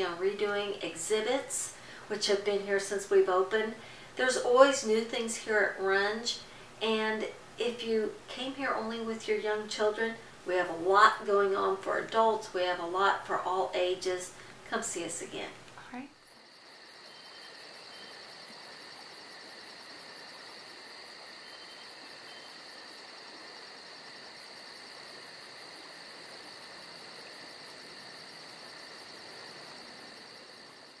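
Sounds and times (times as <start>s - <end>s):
crickets trilling: 16.1s - 31.0s
pulsing insect chirp: 16.1s - 31.0s.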